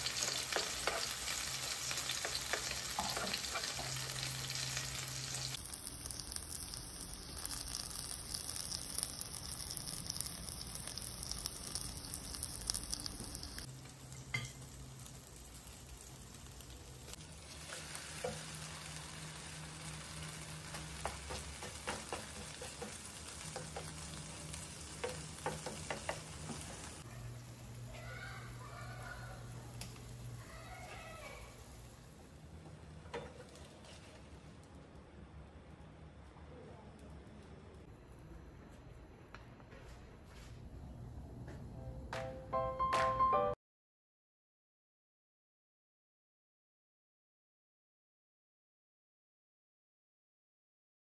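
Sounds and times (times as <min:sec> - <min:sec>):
omelette sizzling in oil: 0:00.0 - 0:27.1.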